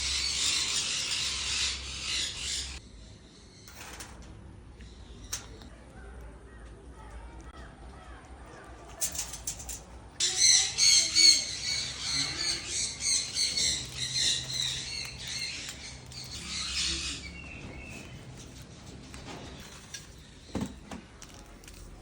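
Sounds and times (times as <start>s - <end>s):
bird squawking: 0.0s - 2.8s, 10.2s - 17.5s.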